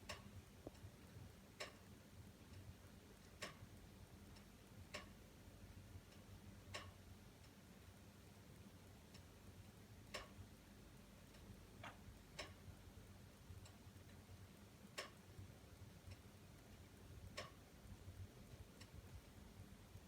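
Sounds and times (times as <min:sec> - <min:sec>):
low steady background noise: 0:00.0 - 0:20.0.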